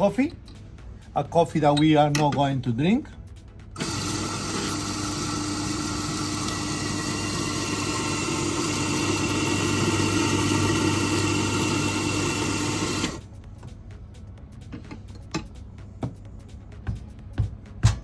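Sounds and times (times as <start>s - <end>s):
coffee machine motor humming: 3.8s - 13.2s.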